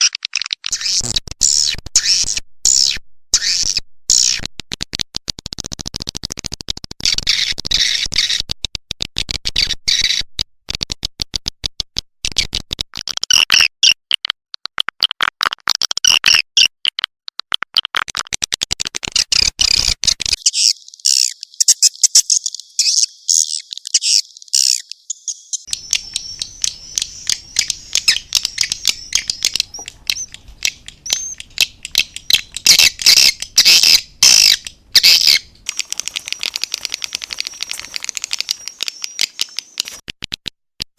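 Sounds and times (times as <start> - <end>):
swiftlets twittering: 20.4 - 40.0.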